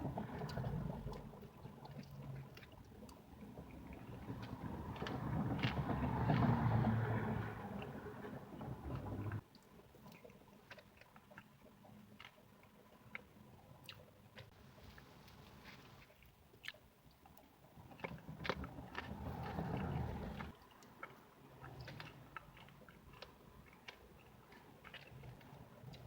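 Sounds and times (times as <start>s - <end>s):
wet mouth clicks: 15.3s - 26.0s
person biting and chewing: 20.6s - 26.0s.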